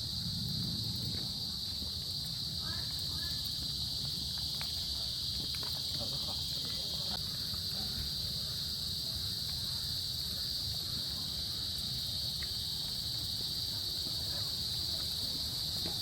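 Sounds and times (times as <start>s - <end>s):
constant low rumble: 0.0s - 16.0s
insect chorus: 0.0s - 16.0s.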